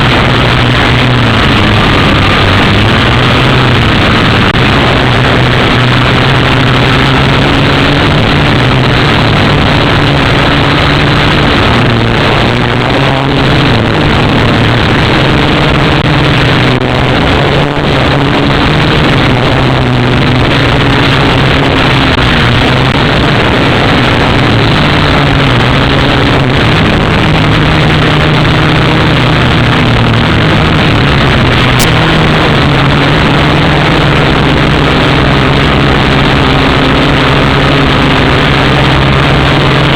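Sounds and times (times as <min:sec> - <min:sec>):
quadcopter propellers whirring: 0:00.0 - 0:39.9.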